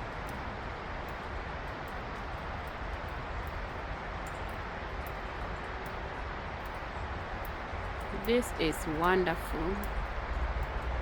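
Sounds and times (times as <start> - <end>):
faint ticks: 1.0 - 6.0, 6.6 - 9.0, 9.8 - 11.0.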